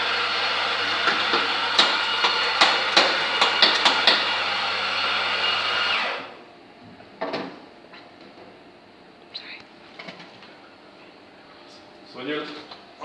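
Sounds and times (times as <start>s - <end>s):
coffee grinder running: 0.0s - 6.4s
knock: 1.0s - 4.3s.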